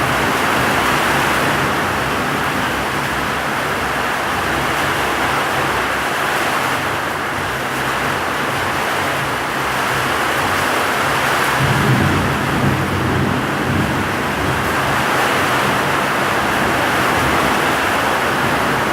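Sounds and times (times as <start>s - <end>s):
heavy rain pouring: 0.0s - 18.9s
low thunder rumble: 11.5s - 18.9s.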